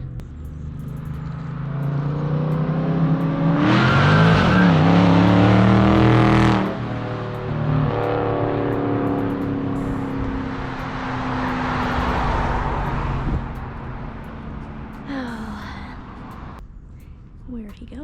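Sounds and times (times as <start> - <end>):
car engine accelerating hard: 0.0 - 16.9
low exhaust drone: 0.0 - 18.0.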